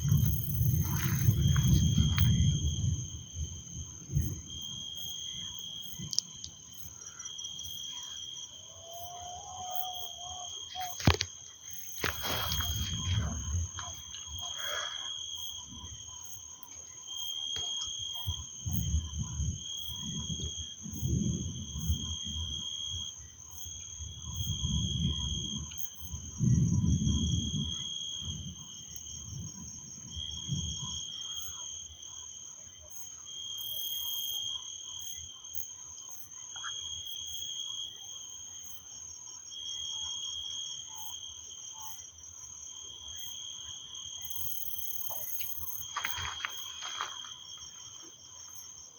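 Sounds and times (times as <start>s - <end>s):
distant thunder rumbling: 0.0s - 6.1s, 12.1s - 14.1s
high insect hum: 0.0s - 48.9s
insects chirring: 0.0s - 48.9s.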